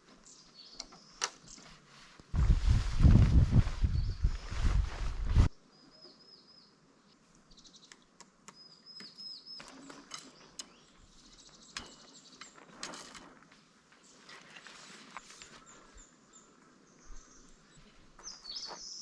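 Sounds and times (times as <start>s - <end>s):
birds trilling and chirping: 7.5s - 13.4s.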